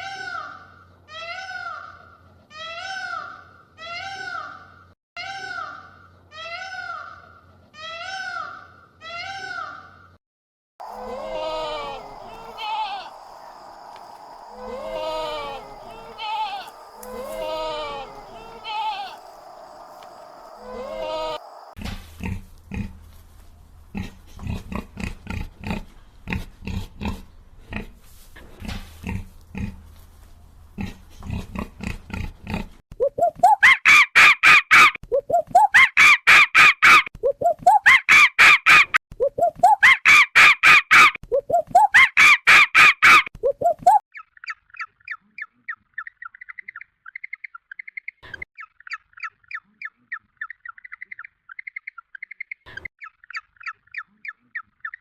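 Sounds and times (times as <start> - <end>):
animal calls rising in pitch: 10.8 - 21.8
fast high bird chirping: 10.8 - 21.8.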